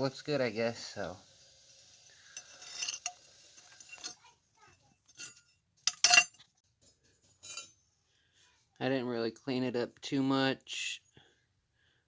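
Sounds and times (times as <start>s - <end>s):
metal parts clinking: 2.4s - 4.2s, 5.1s - 6.4s, 7.4s - 7.7s.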